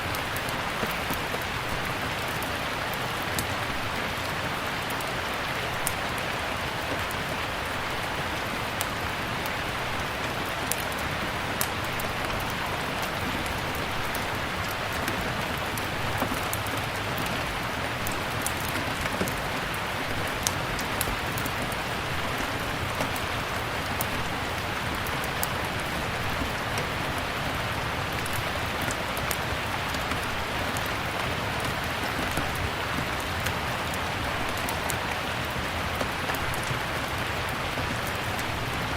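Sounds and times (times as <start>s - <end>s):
steady rain hiss: 0.0s - 38.9s
wood fire crackling and popping: 8.8s - 15.2s, 20.1s - 21.8s.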